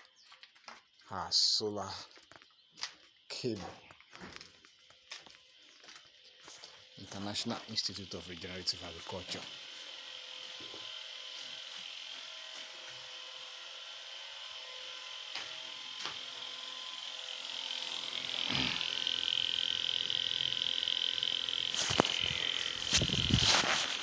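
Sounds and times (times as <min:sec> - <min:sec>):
high-pitched insect chorus: 0:01.0 - 0:13.5, 0:14.4 - 0:24.0.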